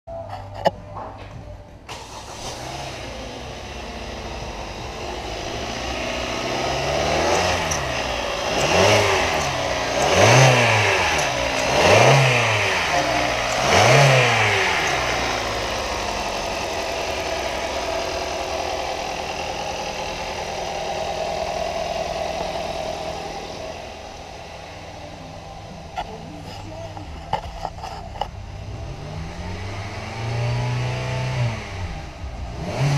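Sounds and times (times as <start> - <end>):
car engine idling and revving: 0.1 - 32.9.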